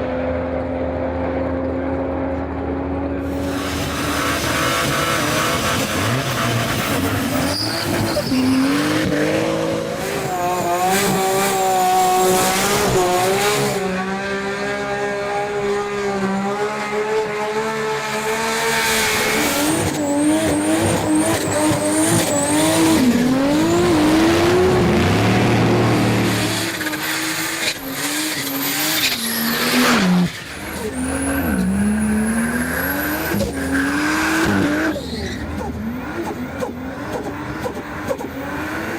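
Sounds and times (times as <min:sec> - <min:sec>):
car engine revving hard: 0:03.2 - 0:38.9.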